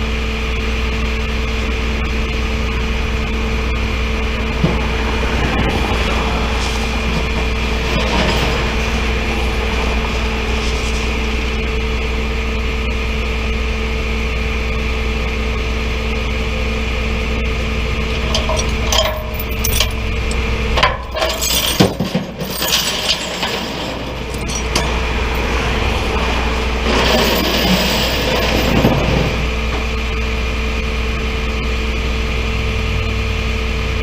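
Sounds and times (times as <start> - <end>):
truck engine humming: 0.0 - 34.0
metallic clinks and knocks: 18.1 - 25.4.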